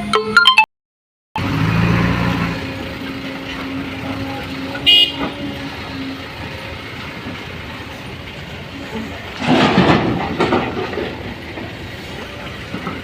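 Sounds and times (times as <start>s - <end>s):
vehicle horn toot: 4.8s - 5.4s.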